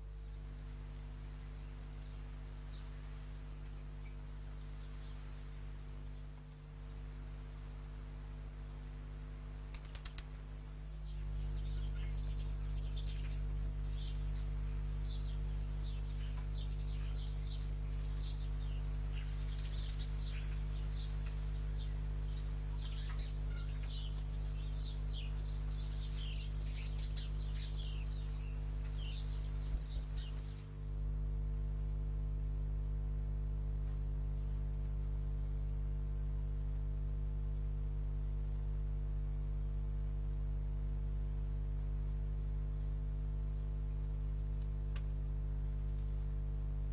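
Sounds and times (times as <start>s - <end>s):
small birds chirping: 0.0s - 6.5s, 8.1s - 31.2s
low steady hum: 0.0s - 46.9s.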